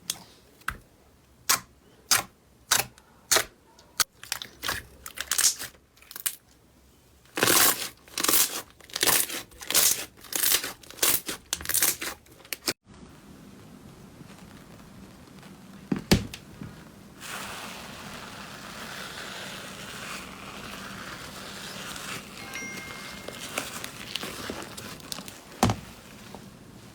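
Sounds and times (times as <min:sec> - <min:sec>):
soft continuous crackle: 0:04.0 - 0:26.9
slime squishing and crackling: 0:04.1 - 0:06.5, 0:07.3 - 0:12.8, 0:17.2 - 0:26.3.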